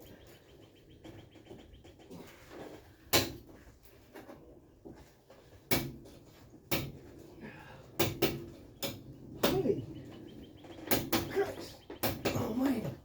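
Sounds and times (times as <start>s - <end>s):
hand tools clanking on metal: 5.7s - 13.0s.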